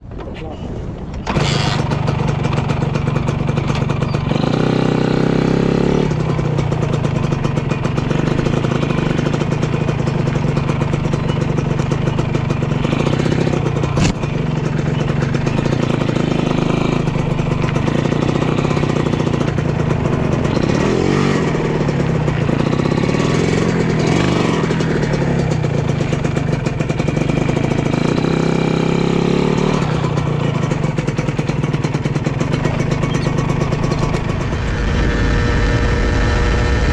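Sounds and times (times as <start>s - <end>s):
two-stroke motorcycle engine revving: 1.2s - 36.9s
sharp click: 14.0s - 14.2s.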